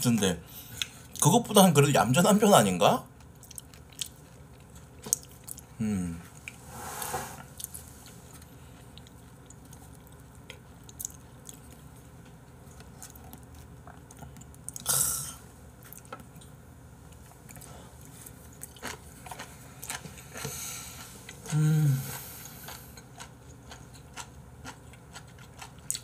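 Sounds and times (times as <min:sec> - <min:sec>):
chewing with wet mouth clicks: 0:03.2 - 0:05.7, 0:08.4 - 0:14.9, 0:22.7 - 0:26.0.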